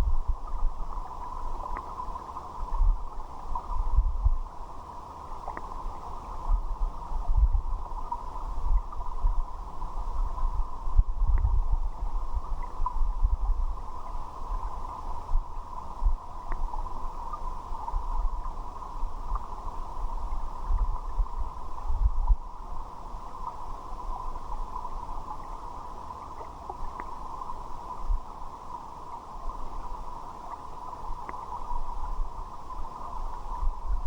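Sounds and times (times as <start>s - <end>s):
muffled river water: 0.0s - 34.0s
faint clicks: 5.4s - 5.8s, 26.3s - 27.2s.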